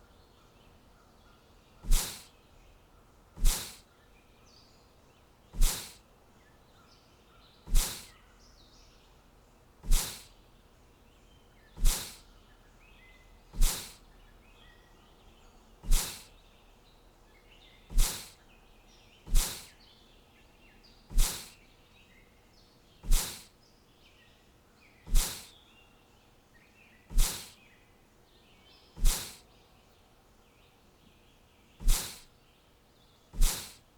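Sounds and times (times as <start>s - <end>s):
small birds chirping: 0.0s - 33.9s
sharp swishing hit: 1.9s - 2.2s, 3.4s - 3.8s, 5.6s - 6.0s, 7.7s - 8.1s, 9.8s - 10.3s, 11.8s - 12.2s, 13.6s - 14.0s, 15.9s - 16.2s, 17.9s - 18.3s, 19.3s - 19.7s, 21.1s - 21.5s, 23.1s - 23.4s, 25.1s - 25.5s, 27.1s - 27.5s, 29.0s - 29.4s, 31.8s - 32.2s, 33.4s - 33.8s.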